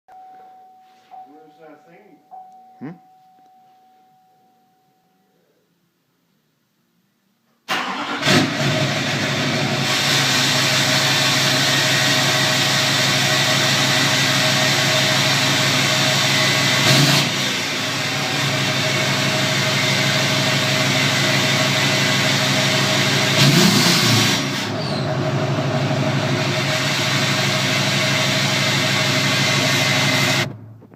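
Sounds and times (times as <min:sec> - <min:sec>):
diesel engine starting and idling: 0:07.7 - 0:30.9.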